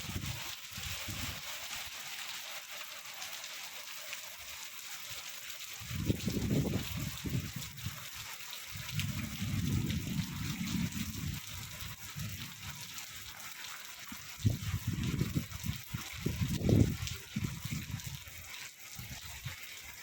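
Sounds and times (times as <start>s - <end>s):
wind buffeting microphone: 0.0s - 1.4s, 5.8s - 8.0s, 8.7s - 12.7s, 14.4s - 18.3s
heavy rain: 0.0s - 20.0s.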